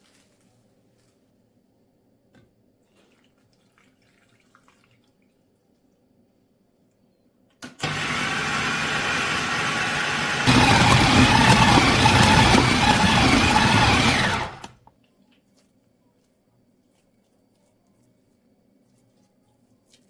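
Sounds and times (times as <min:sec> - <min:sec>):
electric blender running: 0:07.8 - 0:14.8.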